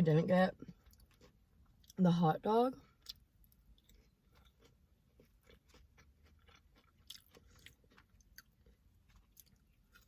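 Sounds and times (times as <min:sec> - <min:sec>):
person chewing: 0:00.7 - 0:02.0, 0:02.8 - 0:10.0.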